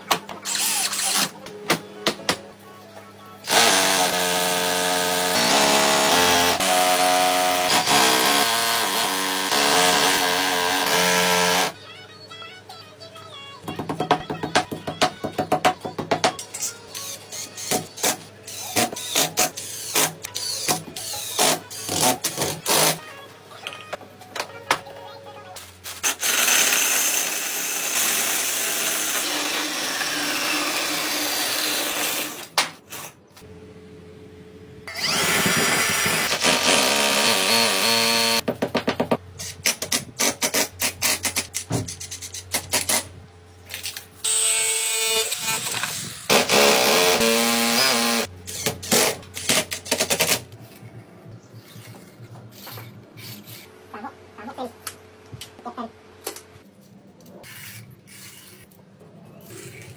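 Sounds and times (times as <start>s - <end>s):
electric power tool motor running: 34.9s - 38.4s.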